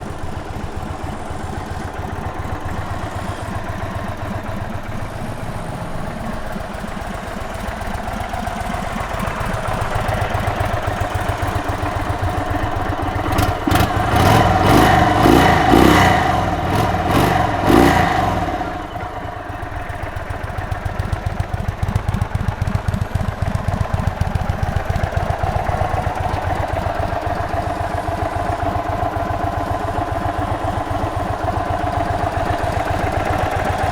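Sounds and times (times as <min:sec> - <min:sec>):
motorcycle engine idling: 0:00.0 - 0:33.9
engine revving: 0:13.1 - 0:19.4.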